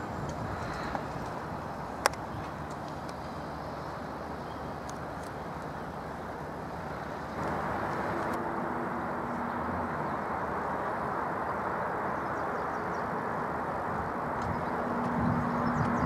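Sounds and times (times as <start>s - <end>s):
train rushing rail noise: 5.8s - 15.8s.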